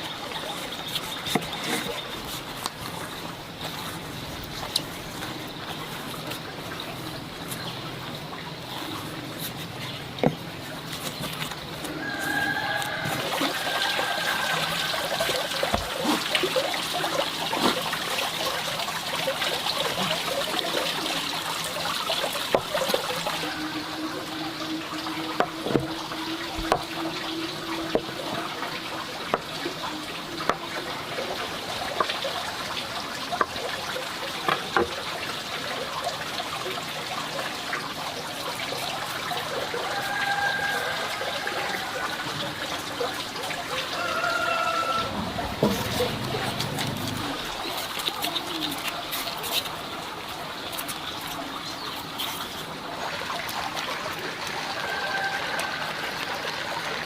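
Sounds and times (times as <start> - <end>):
food deep-frying in hot oil: 11.9 - 57.0.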